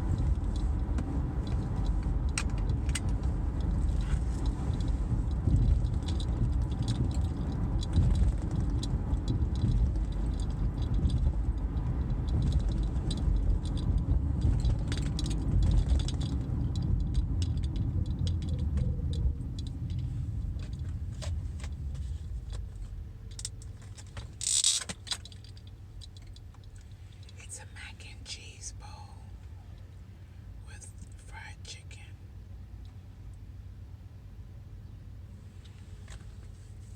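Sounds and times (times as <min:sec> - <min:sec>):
small rattles and clicks: 0:00.0 - 0:27.4
car cabin road noise: 0:00.0 - 0:36.9.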